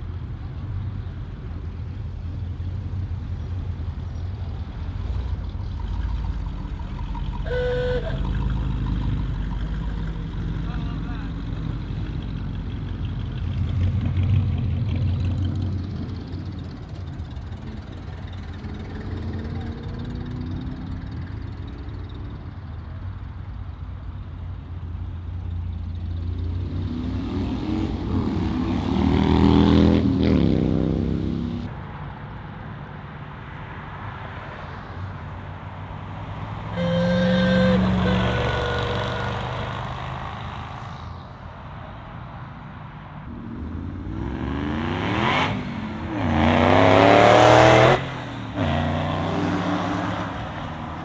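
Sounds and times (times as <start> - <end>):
car engines rumbling: 0.0 - 51.0
car accelerating past: 36.1 - 41.2, 43.3 - 51.0.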